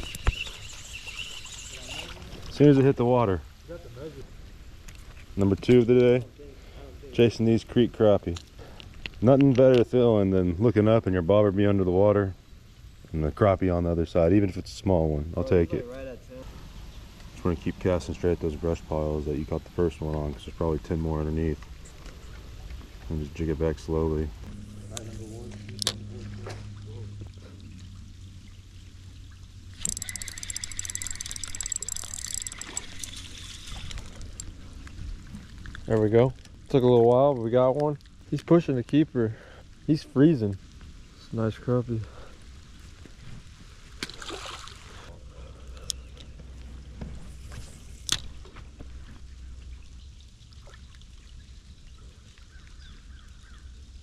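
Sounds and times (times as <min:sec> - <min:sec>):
fishing reel clicking and whirring: 0:00.0 - 0:02.2, 0:29.8 - 0:34.5
water splashing and trickling: 0:00.0 - 0:06.4, 0:15.4 - 0:54.0
steady low rumble: 0:16.4 - 0:29.9.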